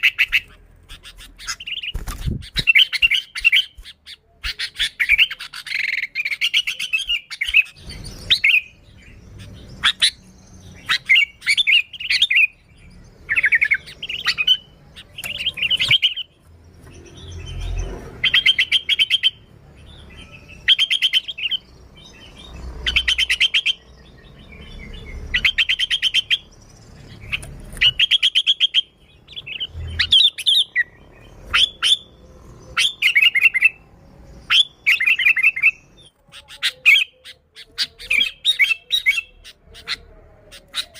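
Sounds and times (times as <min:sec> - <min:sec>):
bulbul chattering song: 0:00.0 - 0:40.9.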